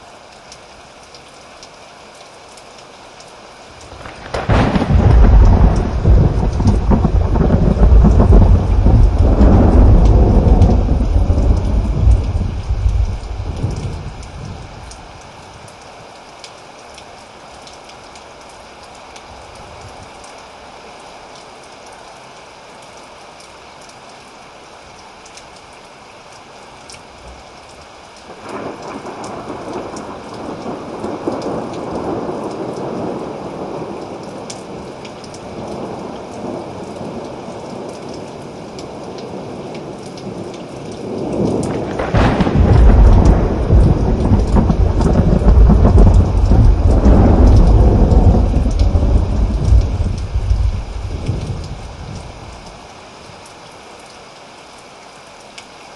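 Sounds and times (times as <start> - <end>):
steady rain: 0.0 - 55.9
thunder rumbling: 3.9 - 14.7, 41.2 - 52.8
deep long thunder peal: 4.0 - 14.2, 41.6 - 52.2.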